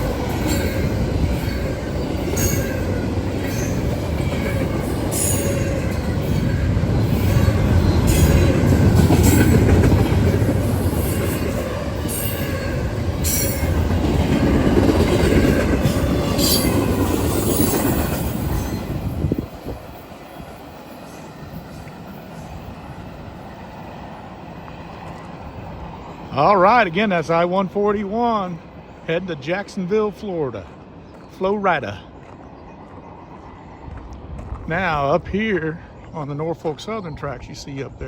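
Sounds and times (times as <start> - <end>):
high wheel squeals: 0.0 - 9.6, 10.7 - 13.9, 16.0 - 22.8
train wheels rumbling on rail: 0.0 - 38.0.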